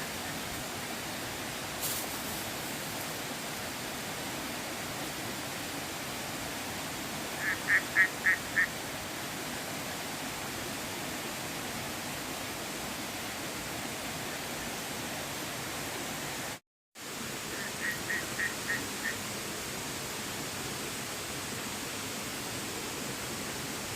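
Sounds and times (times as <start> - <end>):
river rushing: 0.0 - 23.9.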